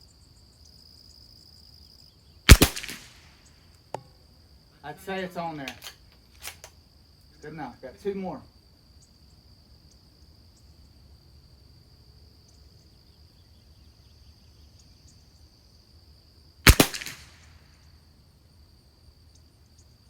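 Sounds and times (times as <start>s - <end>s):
crickets chirring: 0.0s - 20.0s
rifle shot with echo: 2.5s - 3.3s, 16.7s - 17.6s.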